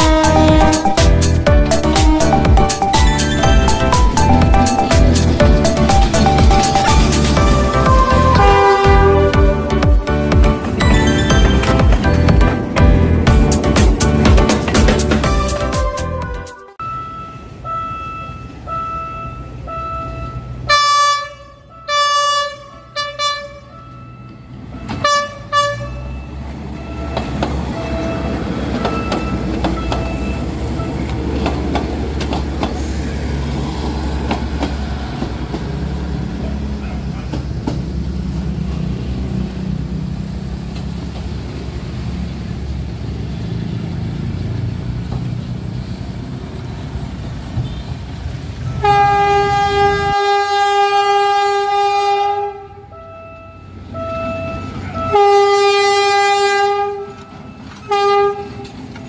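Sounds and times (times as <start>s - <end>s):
train horn blasts: 0.0s - 1.0s, 7.3s - 10.1s, 15.3s - 26.1s, 48.6s - 58.8s
train wheel clicks: 31.0s - 32.8s, 34.1s - 35.8s.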